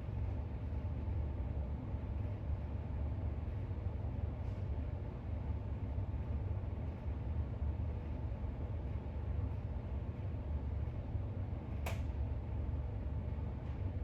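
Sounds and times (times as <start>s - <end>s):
low room noise rumble: 0.0s - 14.0s.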